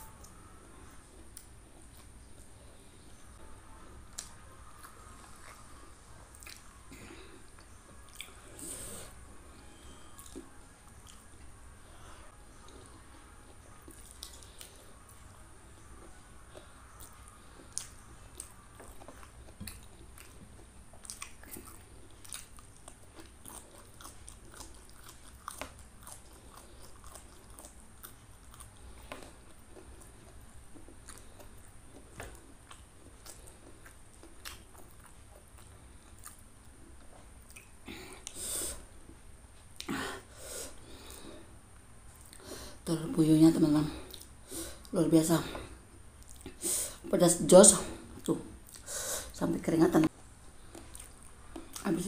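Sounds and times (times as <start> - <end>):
person chewing and biting: 13.8 - 15.2, 16.5 - 36.8.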